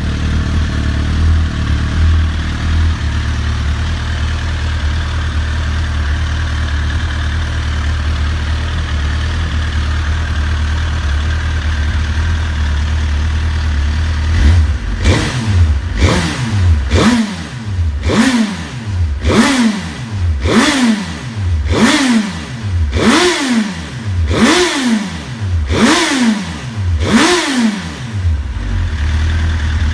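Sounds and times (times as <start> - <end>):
motorcycle engine idling: 0.0 - 29.9
engine revving: 13.6 - 29.9.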